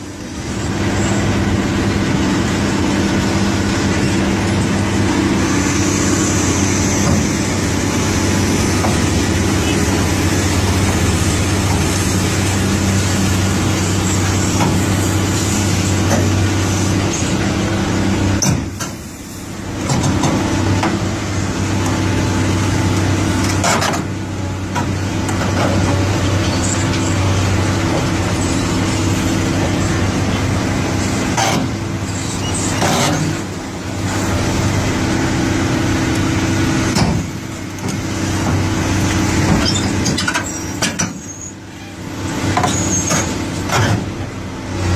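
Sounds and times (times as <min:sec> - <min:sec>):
excavator diesel engine under load: 0:00.0 - 0:44.9.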